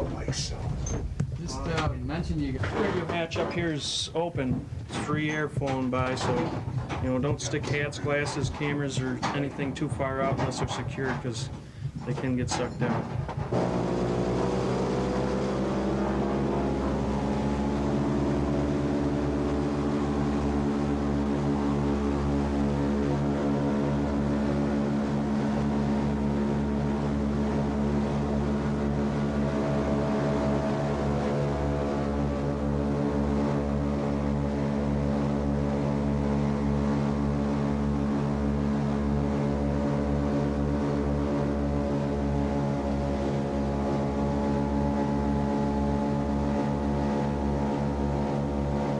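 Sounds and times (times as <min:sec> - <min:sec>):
aircraft engines droning: 0:13.6 - 0:48.9.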